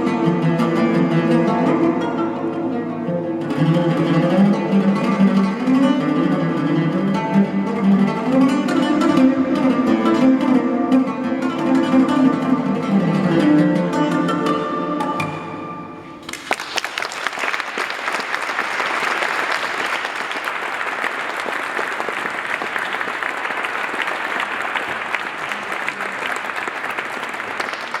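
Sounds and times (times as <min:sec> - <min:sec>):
oud notes: 0:00.0 - 0:16.5
audience applauding: 0:16.2 - 0:28.0.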